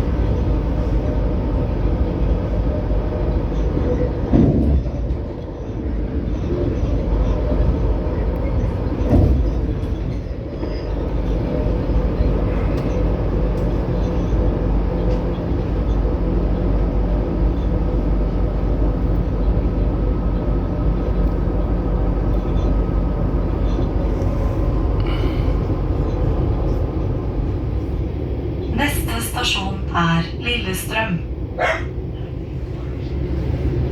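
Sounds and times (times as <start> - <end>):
train knocking: 0.0 - 32.4
train wheels rumbling on rails: 0.0 - 33.9.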